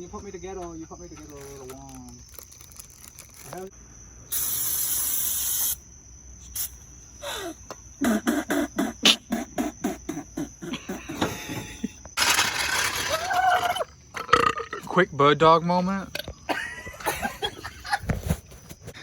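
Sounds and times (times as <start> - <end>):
loud steady hiss: 4.2 - 5.8.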